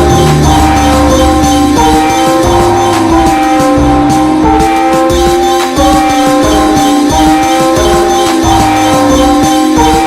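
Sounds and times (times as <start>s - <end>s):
low synth bass: 0.0s - 4.7s
percussive hits: 0.0s - 6.1s
synth melody: 0.0s - 10.0s.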